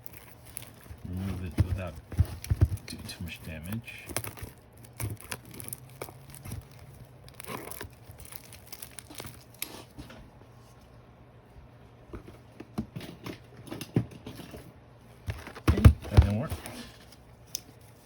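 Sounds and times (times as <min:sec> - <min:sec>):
packaging crinkling and crackling: 0:00.0 - 0:10.2.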